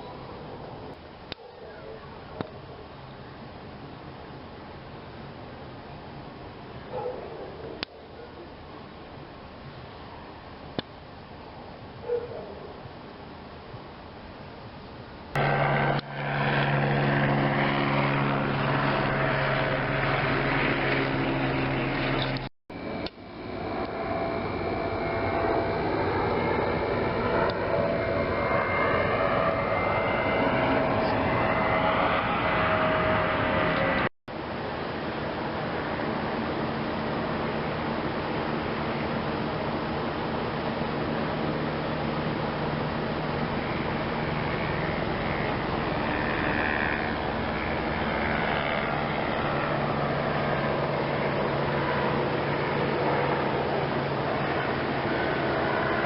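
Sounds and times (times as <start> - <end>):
constant low hum: 0.0 - 56.0.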